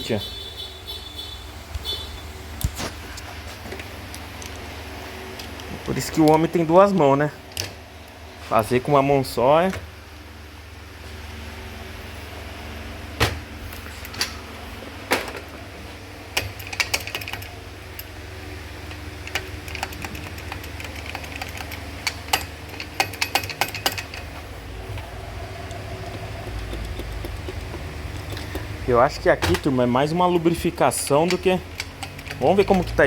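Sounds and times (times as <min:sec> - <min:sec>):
steady low hum: 0:00.0 - 0:33.0
metallic clicks and taps of tools: 0:18.9 - 0:24.3, 0:25.7 - 0:29.7, 0:31.2 - 0:33.0.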